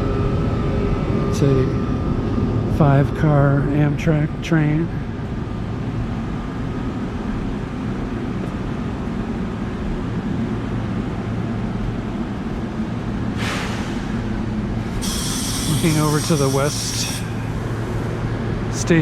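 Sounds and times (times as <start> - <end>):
train rumble and hum: 0.0 - 19.0
burst of hiss: 13.4 - 14.2, 14.9 - 18.1.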